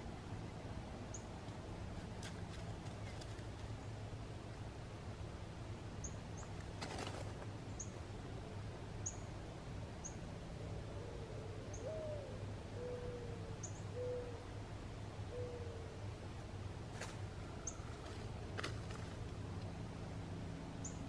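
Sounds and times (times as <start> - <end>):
soft drawn-out bird calls: 10.0 - 14.6, 15.2 - 16.3, 17.0 - 19.3.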